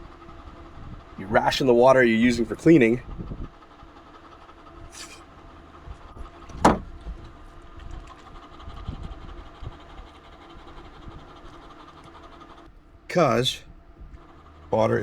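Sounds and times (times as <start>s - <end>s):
motor hum: 2.4s - 15.0s
sharp knock: 6.5s - 6.9s.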